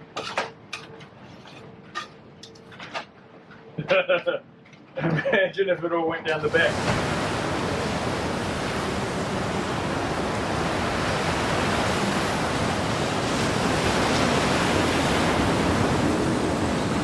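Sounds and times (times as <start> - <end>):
sea rushing around a yacht: 6.3 - 17.0
wind rushing: 6.5 - 17.0.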